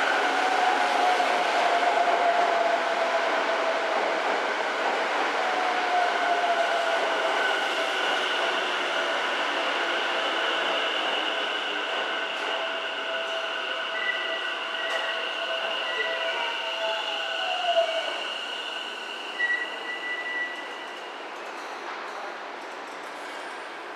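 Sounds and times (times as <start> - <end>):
high brake squeal: 13.2 - 21.0.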